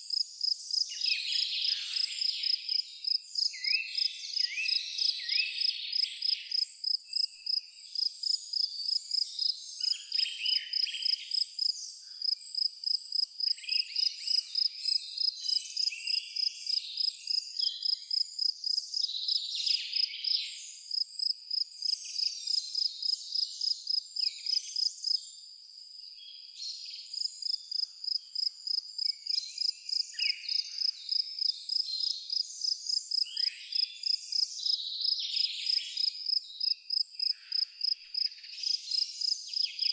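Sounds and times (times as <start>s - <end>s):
cricket chirping: 0.1s - 39.9s
birds calling and singing: 0.7s - 12.6s, 29.0s - 39.9s.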